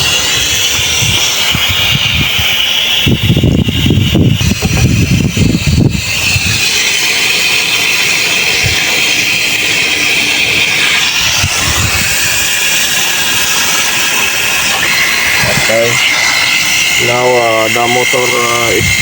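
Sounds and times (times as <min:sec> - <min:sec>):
water rushing from a tap: 0:00.0 - 0:19.0.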